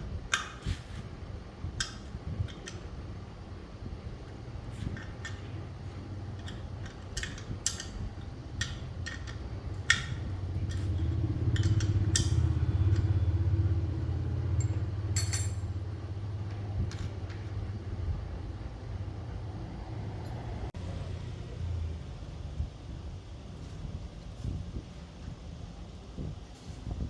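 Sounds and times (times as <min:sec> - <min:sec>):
low steady hum: 0:00.0 - 0:27.0
metal tools clinking: 0:14.6 - 0:15.8.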